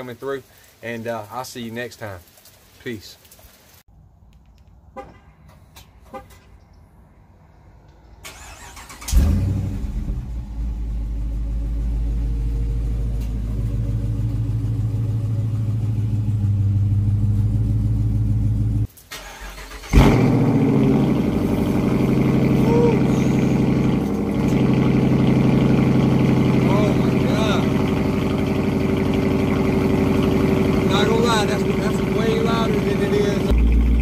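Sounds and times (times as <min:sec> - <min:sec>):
car engine starting and idling: 0:07.6 - 0:34.0.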